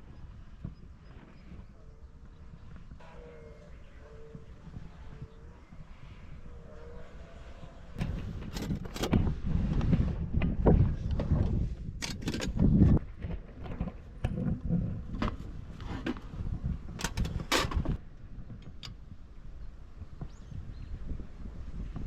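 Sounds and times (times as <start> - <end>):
camping gear knocking and clicking: 8.0 - 9.3, 12.0 - 14.5, 15.1 - 18.0.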